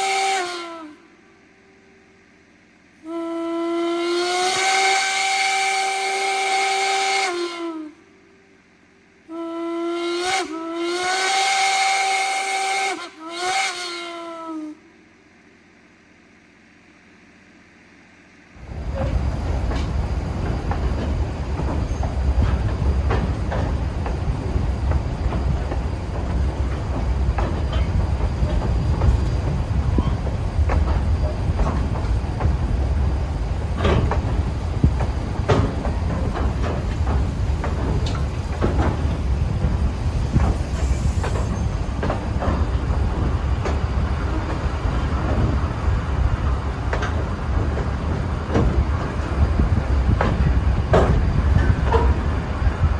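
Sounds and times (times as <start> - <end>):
train rumbling on rails: 0.0 - 52.9
wheels clicking and knocking: 18.6 - 52.9.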